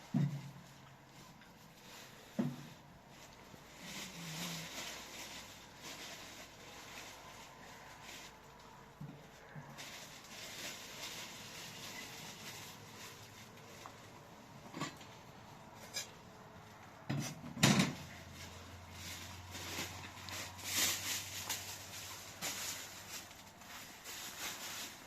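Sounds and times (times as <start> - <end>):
rustling hiss: 0.3 - 14.6, 18.2 - 25.0
knocks and clatters of handling: 8.0 - 25.0.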